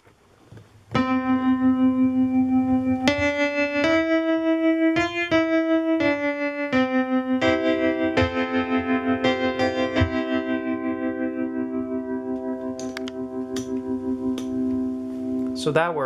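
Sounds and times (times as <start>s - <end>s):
electric piano with tremolo: 0.9s - 16.0s.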